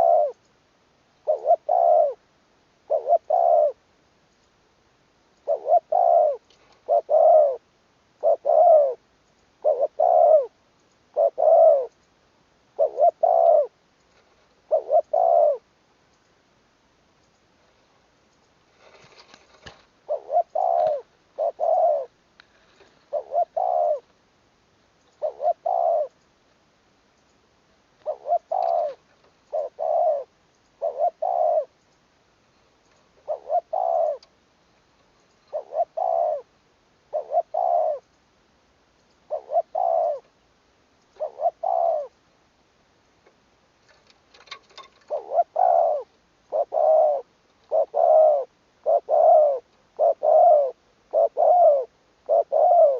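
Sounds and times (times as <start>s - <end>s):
dove cooing: 0.0s - 0.4s, 1.2s - 2.2s, 2.8s - 3.8s, 5.4s - 9.0s, 9.6s - 11.9s, 12.7s - 13.8s, 14.6s - 15.7s, 18.8s - 22.2s, 22.8s - 24.1s, 25.2s - 26.2s, 28.0s - 31.8s, 33.2s - 34.4s, 35.5s - 38.1s, 39.2s - 40.3s, 41.1s - 42.1s, 44.4s - 52.9s.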